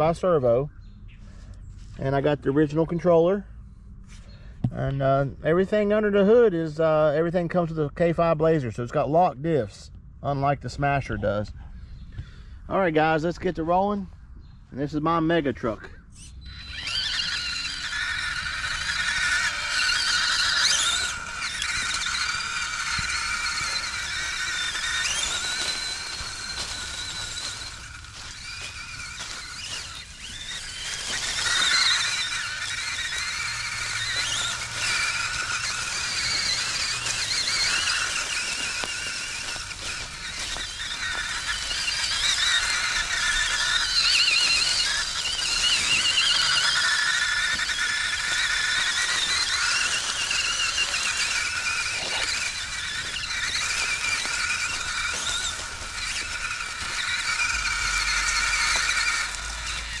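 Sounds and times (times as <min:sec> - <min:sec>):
electric motor whining: 0:16.1 - 1:00.0.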